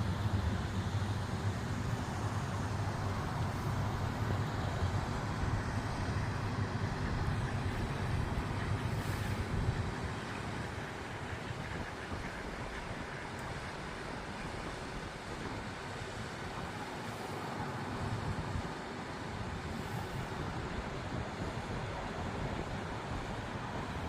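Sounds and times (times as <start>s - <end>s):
distant road traffic rumble: 0.0s - 24.0s.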